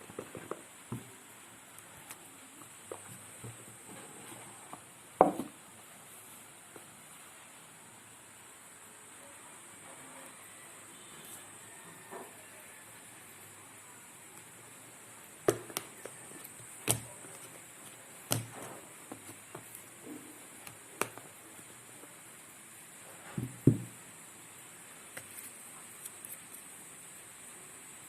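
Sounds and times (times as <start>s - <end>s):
hands handling phone packaging: 15.5s - 21.7s.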